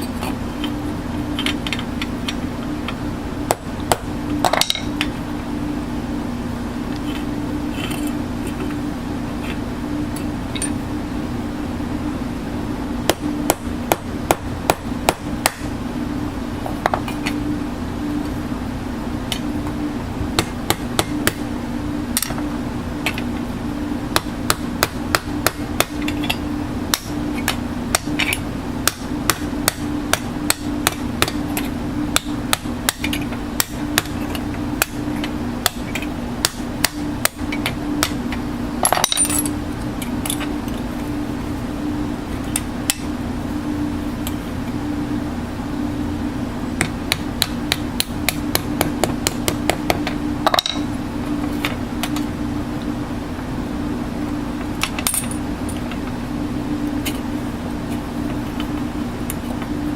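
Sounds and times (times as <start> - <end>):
steady hum: 0.0 - 59.9
hammer striking metal: 46.8 - 50.9.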